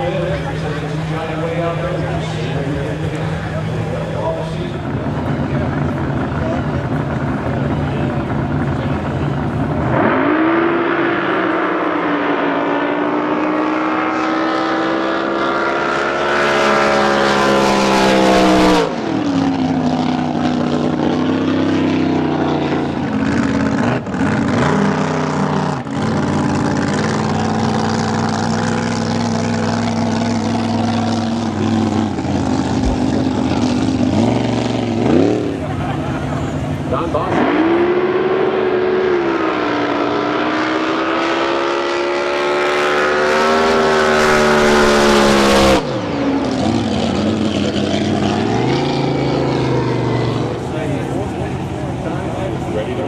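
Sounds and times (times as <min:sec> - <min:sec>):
drag boat engine at full throttle: 0:00.0 - 0:53.0.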